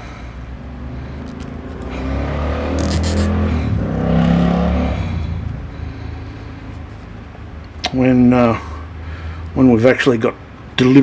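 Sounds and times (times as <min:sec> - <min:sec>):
vehicle driving past: 0:00.5 - 0:07.5.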